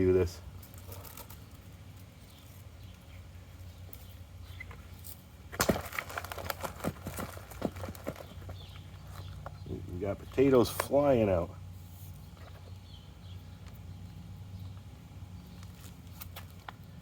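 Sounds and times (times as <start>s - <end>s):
soil and potatoes clattering: 5.5s - 9.4s.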